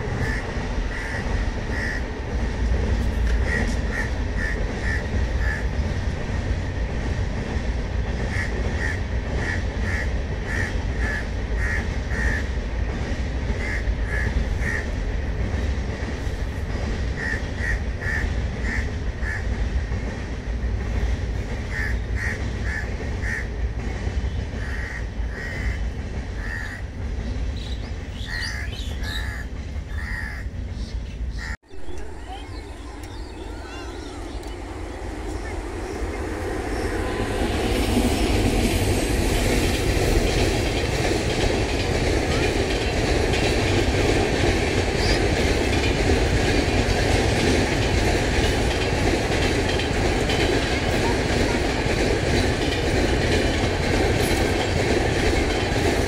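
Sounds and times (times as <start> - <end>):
passenger train rumbling past: 0.0 - 56.0
bird calling: 27.6 - 37.3.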